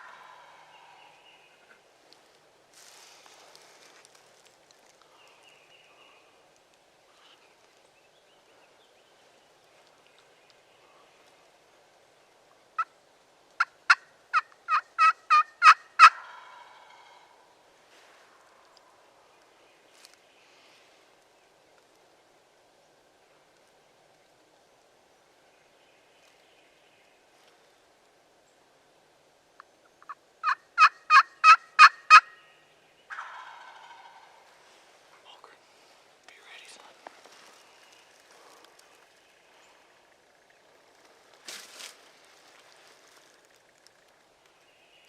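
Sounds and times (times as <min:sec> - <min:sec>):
turkey yelps: 0:13.9 - 0:17.2, 0:30.4 - 0:32.3, 0:33.1 - 0:34.3.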